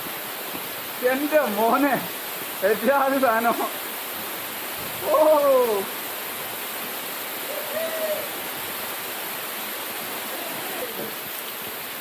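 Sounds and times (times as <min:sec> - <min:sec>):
waterfall rushing: 0:00.0 - 0:12.0
man calling oh: 0:05.0 - 0:06.0, 0:07.4 - 0:08.4.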